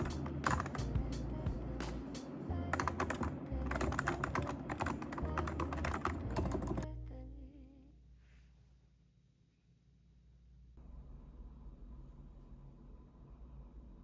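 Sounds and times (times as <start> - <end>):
computer keyboard typing: 0.0 - 6.9.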